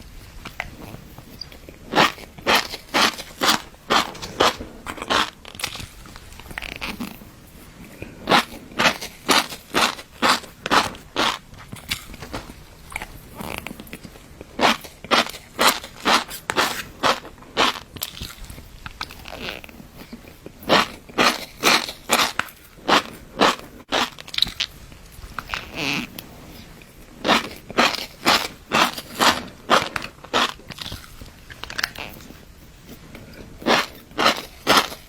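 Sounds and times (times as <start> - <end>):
crunchy chewing: 0.0 - 35.0.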